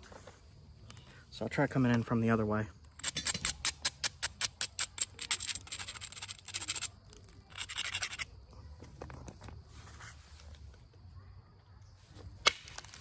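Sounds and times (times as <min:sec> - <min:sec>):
stone scraping: 0:02.9 - 0:08.4
stone scratching strokes: 0:03.0 - 0:08.3
faint rubbing: 0:09.6 - 0:10.7.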